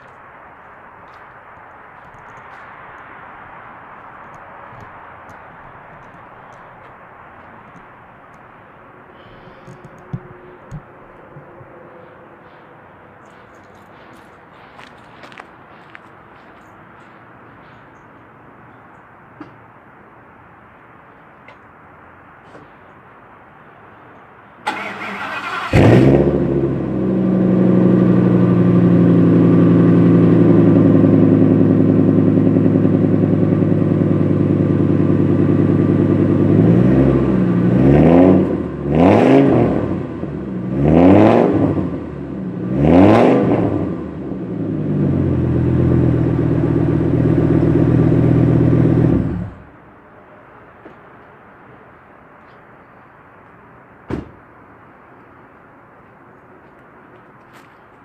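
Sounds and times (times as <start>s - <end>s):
engine revving: 24.7s - 49.7s.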